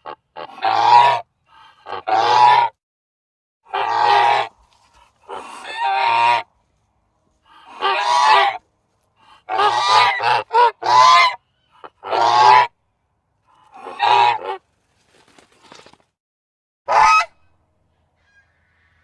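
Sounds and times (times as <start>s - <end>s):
goose honking: 0.0s - 2.7s, 3.7s - 4.6s, 5.2s - 6.5s, 7.5s - 8.6s, 9.2s - 12.7s, 13.5s - 14.6s, 16.9s - 17.4s.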